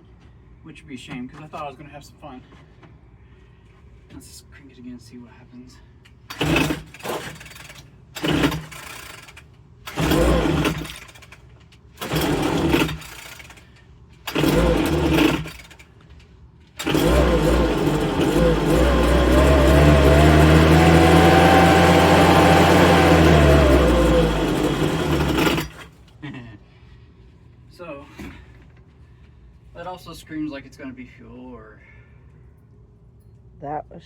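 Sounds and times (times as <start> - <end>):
recoil starter pulls: 6.2 - 16.0, 16.8 - 26.1
leaf blower engine running: 9.9 - 11.1, 12.0 - 13.6, 14.3 - 15.6, 16.8 - 25.9.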